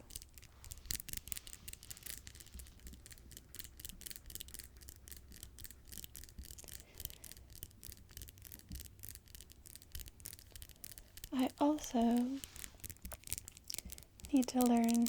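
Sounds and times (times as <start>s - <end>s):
fingernails clicking and scratching: 0.0s - 15.0s.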